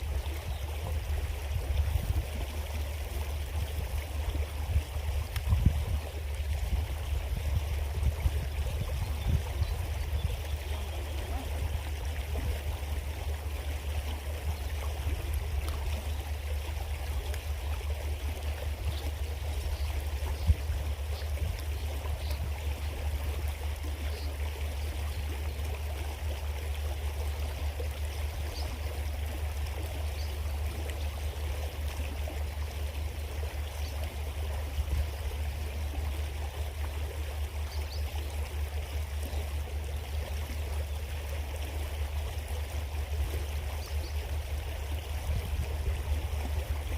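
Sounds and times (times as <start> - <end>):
creek flowing over rocks: 0.0 - 46.9.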